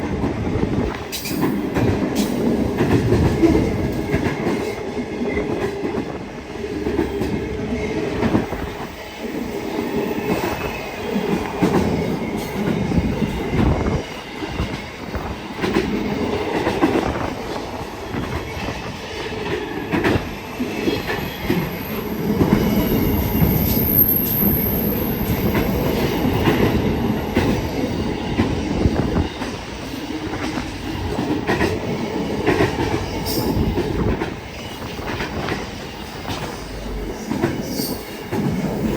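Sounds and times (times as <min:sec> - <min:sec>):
train wagons rumbling past: 0:00.0 - 0:38.9
high wheel squeal: 0:20.4 - 0:27.1.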